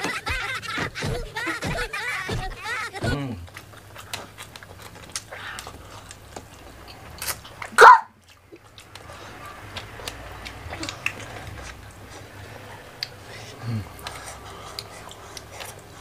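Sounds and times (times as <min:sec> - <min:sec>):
person coughing: 0:00.0 - 0:03.4
wet chewing clicks: 0:00.0 - 0:16.0
fingers picking at food: 0:03.5 - 0:12.0, 0:14.0 - 0:16.0.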